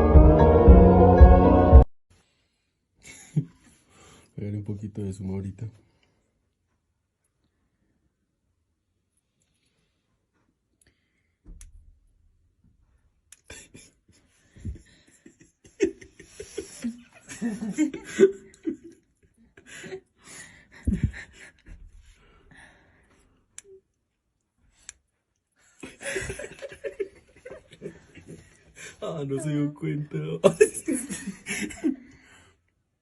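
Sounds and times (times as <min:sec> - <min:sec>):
people laughing and giggling: 0:13.5 - 0:20.1, 0:20.7 - 0:21.8, 0:25.8 - 0:29.0, 0:30.4 - 0:32.2.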